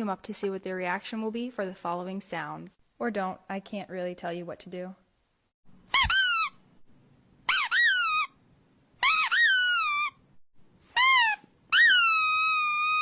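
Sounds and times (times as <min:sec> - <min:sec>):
high-pitched squeaks: 0:05.9 - 0:06.6, 0:07.5 - 0:08.4, 0:09.0 - 0:10.2, 0:10.9 - 0:13.0.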